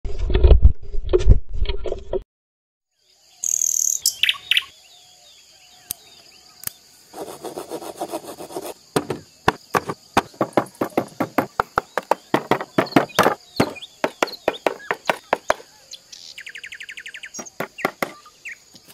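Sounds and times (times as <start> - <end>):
small birds chirping: 3.0 - 18.9
high insect-like buzz: 5.9 - 16.3
fast sharp knocks: 8.9 - 15.7, 17.4 - 18.3.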